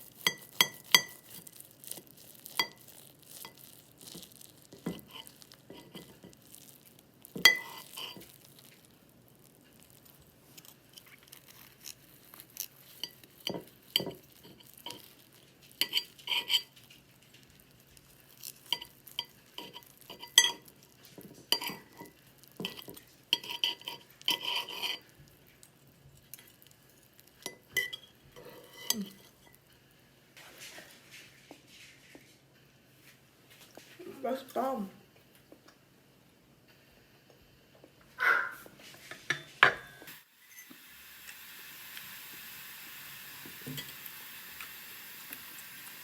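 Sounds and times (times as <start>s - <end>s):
cutlery clinking against dishes: 0.2s - 1.5s, 7.4s - 8.3s, 15.8s - 16.8s, 18.7s - 25.1s, 27.4s - 29.6s.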